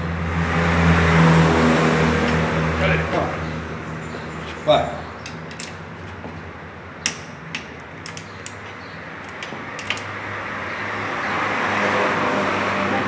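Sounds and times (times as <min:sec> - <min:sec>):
hand tools clicking on bolts: 0:05.2 - 0:05.8, 0:07.0 - 0:10.2.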